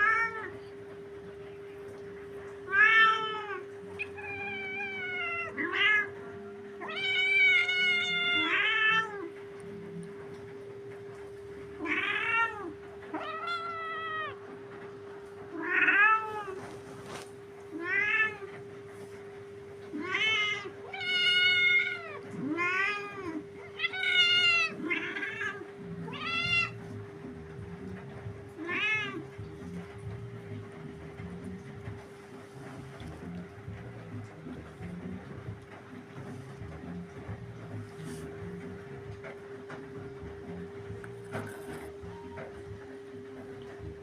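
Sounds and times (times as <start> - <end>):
steady low hum: 0.0 - 44.0
cat meowing: 2.7 - 6.2, 6.8 - 9.3, 11.8 - 14.4, 15.5 - 16.6, 17.7 - 18.5, 20.0 - 26.9, 28.6 - 29.3.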